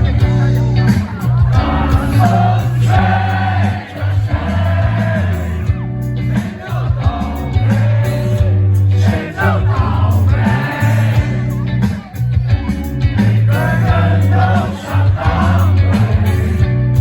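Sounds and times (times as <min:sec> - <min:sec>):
heavy bass notes: 0:00.0 - 0:17.0
live rock band playing: 0:00.0 - 0:17.0.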